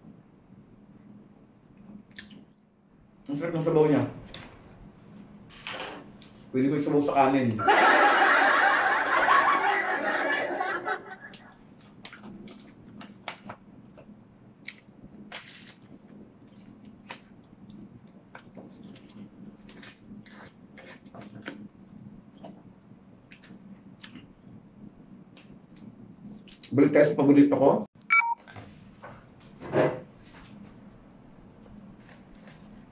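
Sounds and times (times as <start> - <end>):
person chewing food: 11.3 - 22.6, 23.2 - 24.4.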